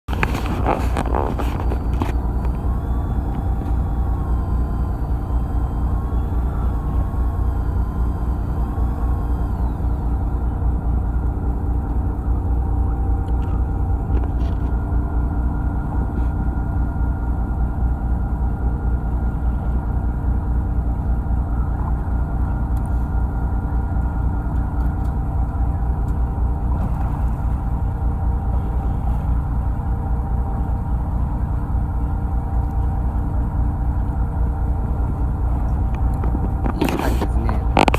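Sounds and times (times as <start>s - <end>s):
boat engine low rumble: 0.0s - 37.9s
faint wavering whine: 0.1s - 37.9s.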